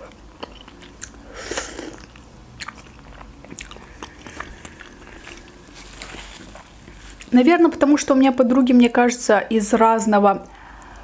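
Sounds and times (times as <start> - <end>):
person chewing dumpling: 0.0 - 7.3.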